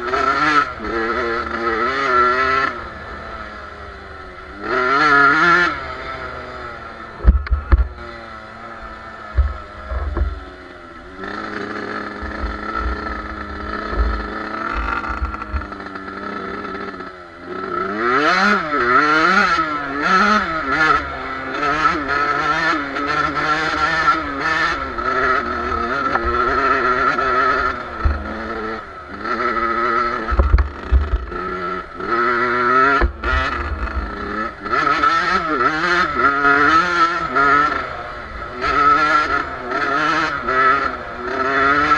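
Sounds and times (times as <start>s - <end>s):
motocross bike engine revving: 0.0s - 41.9s
low thumps on microphone: 7.2s - 8.0s, 9.3s - 10.4s, 12.2s - 15.7s, 30.3s - 31.3s.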